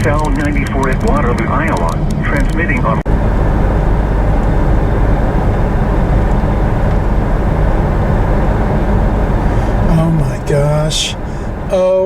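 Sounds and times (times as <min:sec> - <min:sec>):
car cabin road and engine noise: 0:00.0 - 0:12.0.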